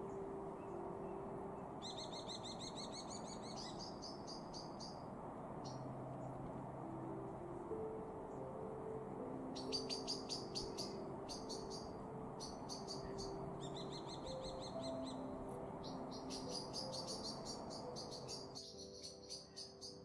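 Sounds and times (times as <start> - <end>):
small bird chirping: 1.8 - 6.3, 9.6 - 20.0.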